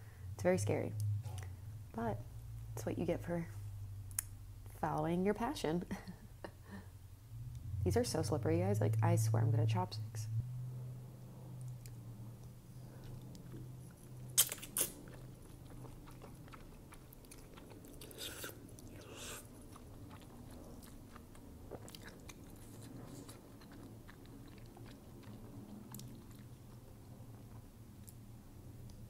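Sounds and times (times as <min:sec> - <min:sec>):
chewing noodles: 0:11.6 - 0:28.2
wet mouth sounds: 0:13.0 - 0:26.8.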